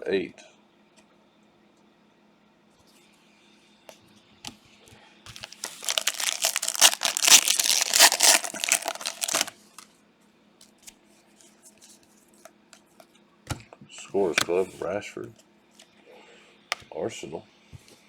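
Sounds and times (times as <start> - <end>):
plastic wrapper tearing and crinkling: 5.3 - 9.8.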